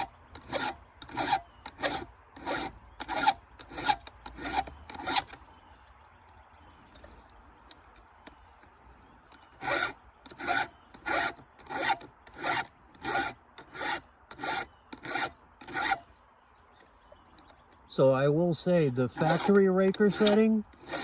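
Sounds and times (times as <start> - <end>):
hand file rasping on chain: 0.0 - 5.4, 9.5 - 16.0, 19.1 - 21.0.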